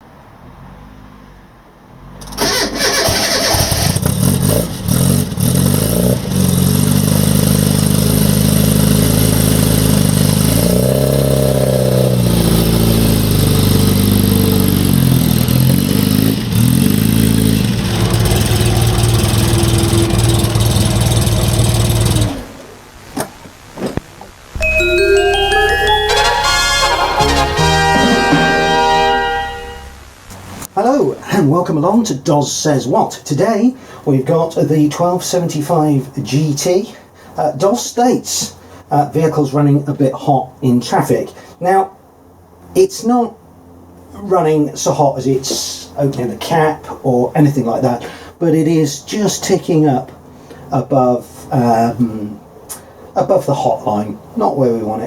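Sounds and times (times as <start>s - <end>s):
car engine starting and revving: 0.4s - 23.0s.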